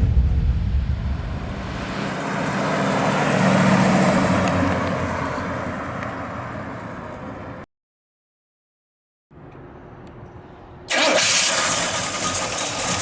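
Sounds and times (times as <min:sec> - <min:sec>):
road noise: 0:00.0 - 0:07.7, 0:09.3 - 0:13.0
car driving past: 0:01.6 - 0:07.2.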